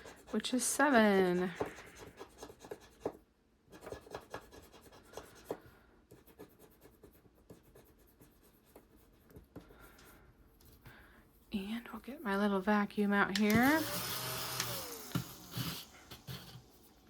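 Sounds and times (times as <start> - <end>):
tool scraping scratch-off coating: 13.7 - 17.0.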